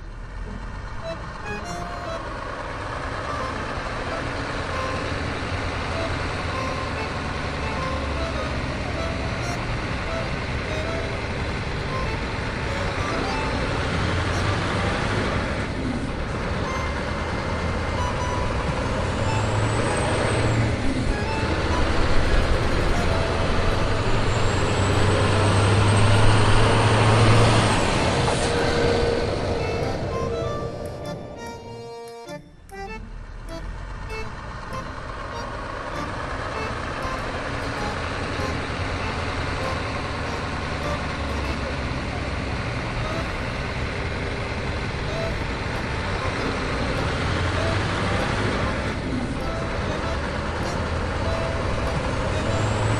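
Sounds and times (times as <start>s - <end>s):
truck engine running: 0.0s - 52.9s.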